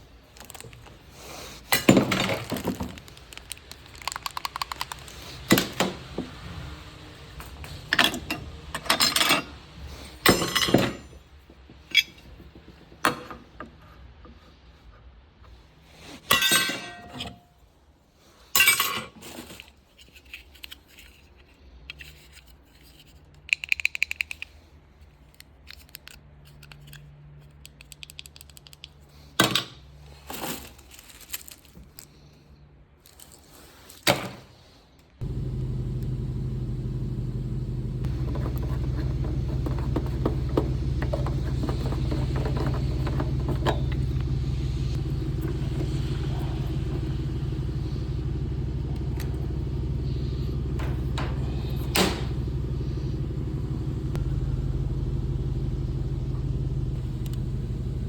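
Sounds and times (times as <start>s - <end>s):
metal tools clinking and scraping: 7.5s - 11.2s, 11.8s - 12.5s, 16.2s - 17.5s, 18.6s - 21.3s, 38.1s - 52.6s.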